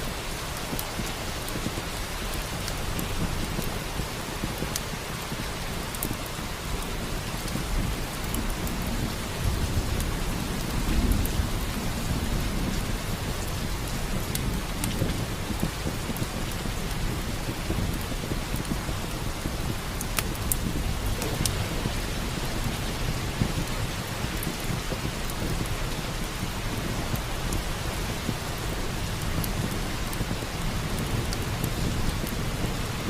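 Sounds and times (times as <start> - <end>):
steady rain: 0.0 - 33.0
wood fire crackling: 0.0 - 33.0
rumble of thunder: 7.1 - 33.0.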